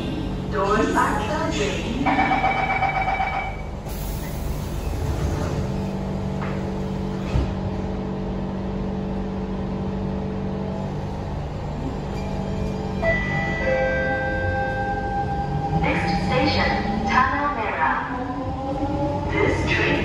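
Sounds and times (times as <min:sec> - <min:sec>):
electrical hum of train: 0:00.0 - 0:20.0
train doors shutting: 0:03.3 - 0:08.0.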